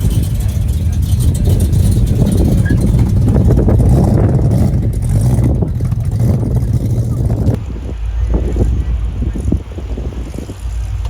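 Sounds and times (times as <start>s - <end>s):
car engine deep rumble: 0.0s - 11.0s.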